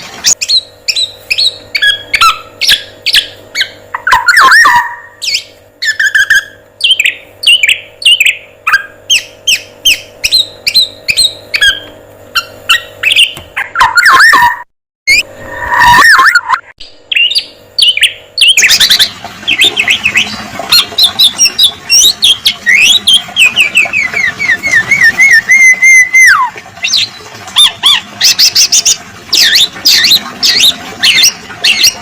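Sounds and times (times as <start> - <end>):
whistled bird chirps: 0.3 - 28.7.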